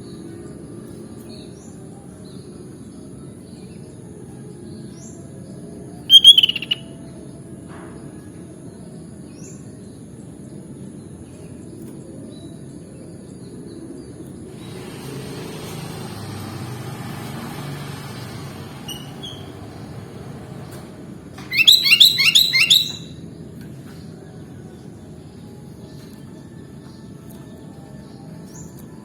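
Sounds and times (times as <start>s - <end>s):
bird chirping: 6.1s - 6.9s, 21.4s - 23.1s.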